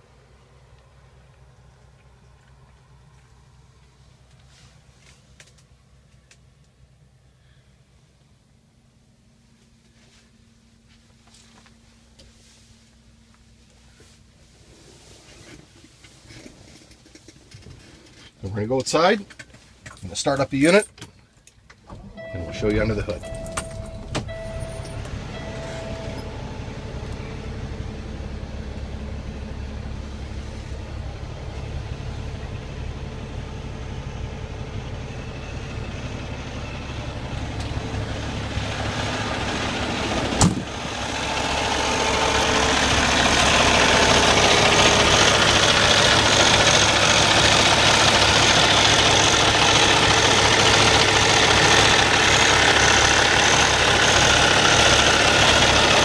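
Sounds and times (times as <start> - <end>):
diesel engine idling: 20.2 - 56.0.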